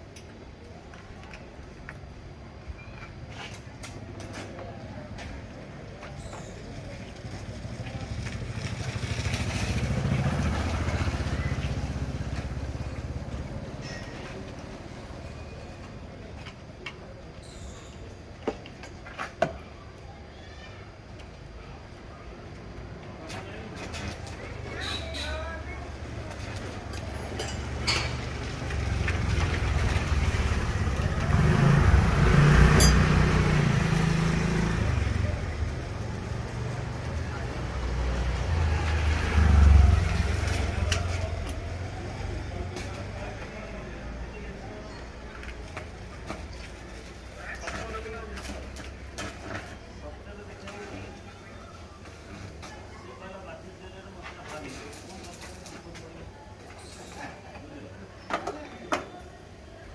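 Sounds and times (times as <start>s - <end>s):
motorcycle engine passing by: 6.9s - 15.4s, 25.9s - 45.2s.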